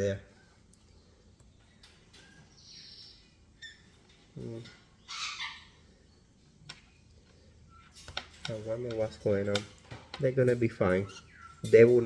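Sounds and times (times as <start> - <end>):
baby parrots squawking: 5.0 - 5.9.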